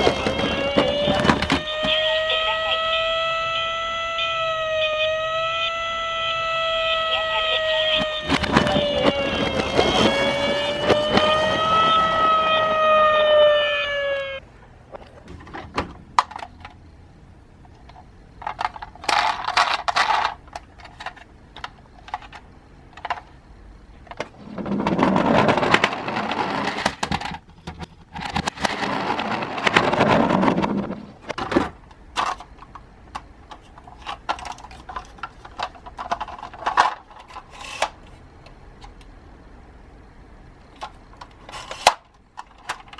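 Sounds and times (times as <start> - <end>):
siren wailing: 0.0 - 14.4
toy cars rolling and rattling: 0.0 - 39.1, 40.6 - 42.9.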